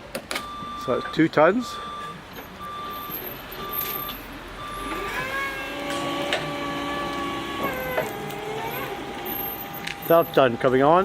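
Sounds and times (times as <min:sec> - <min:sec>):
reversing alarm beeps: 0:00.4 - 0:11.0
motor running: 0:04.8 - 0:11.0.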